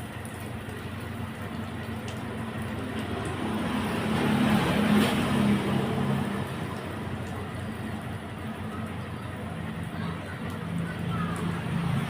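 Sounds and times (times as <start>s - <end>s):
hose water spraying: 0.0s - 12.0s
low motor hum: 0.0s - 12.0s.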